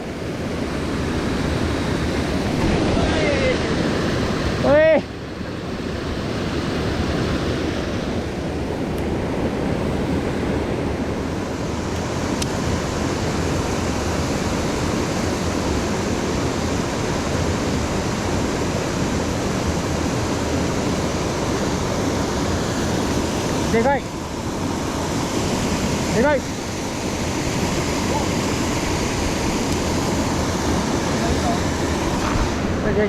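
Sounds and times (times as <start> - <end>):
stream rushing over rocks: 9.2 - 33.0.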